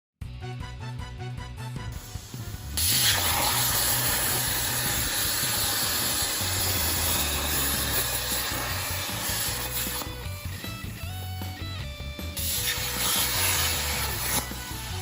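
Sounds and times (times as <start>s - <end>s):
background music with bass: 0.2s - 15.0s
plasma cutter hissing: 2.0s - 10.2s, 12.4s - 15.0s.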